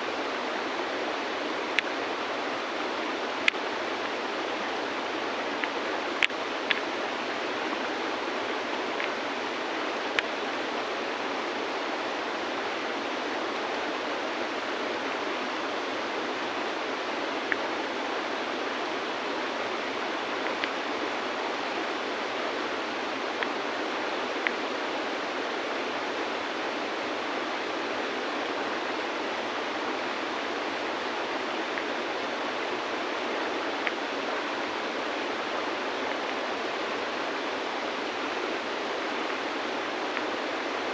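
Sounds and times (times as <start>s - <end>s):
river flowing over stones: 0.0s - 40.9s.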